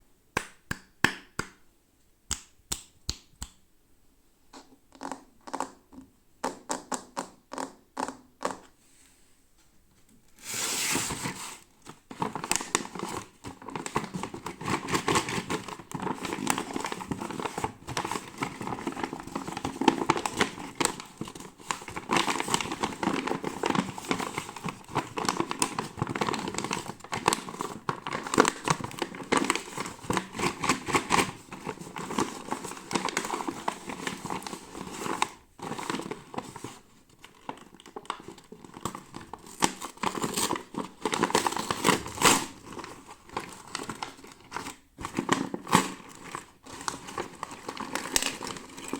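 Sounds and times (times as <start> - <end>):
sharp taps and clicks: 2.3 - 3.6
packaging crinkling and tearing: 10.7 - 48.9.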